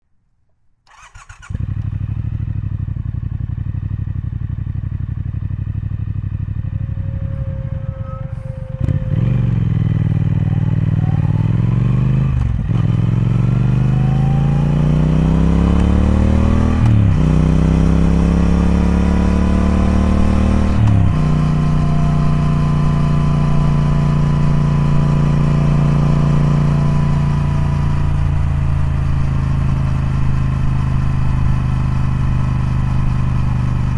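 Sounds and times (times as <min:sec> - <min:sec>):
motorcycle engine accelerating: 0:00.9 - 0:33.9.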